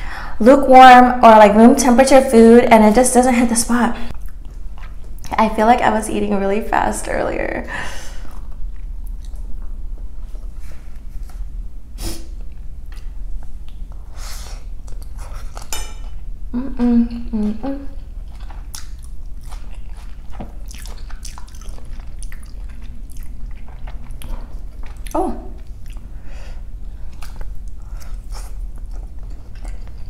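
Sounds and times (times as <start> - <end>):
wet chewing of noodles: 4.1 - 5.3, 8.2 - 11.1, 12.4 - 15.7, 18.0 - 30.0
person humming: 16.5 - 18.0.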